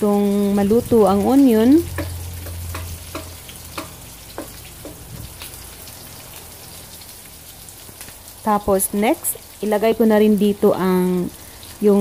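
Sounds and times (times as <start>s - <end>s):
onion and garlic sizzling in oil: 0.0s - 12.0s
wooden spoon knocking pan: 1.8s - 5.4s.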